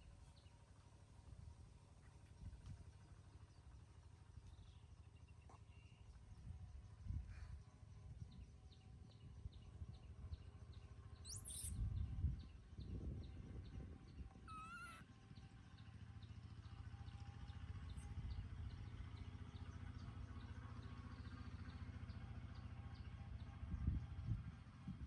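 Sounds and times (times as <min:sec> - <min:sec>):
low steady rumble: 0:00.0 - 0:25.0
animal squeak: 0:11.3 - 0:11.7, 0:14.5 - 0:15.0
animal wavering cry: 0:14.5 - 0:15.0.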